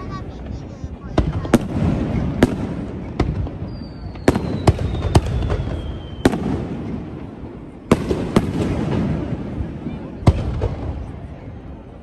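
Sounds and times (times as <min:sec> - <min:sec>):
fireworks bangs: 0:00.0 - 0:12.0
rumble of firework bursts: 0:00.0 - 0:12.0
falling firework whistle: 0:03.6 - 0:06.7.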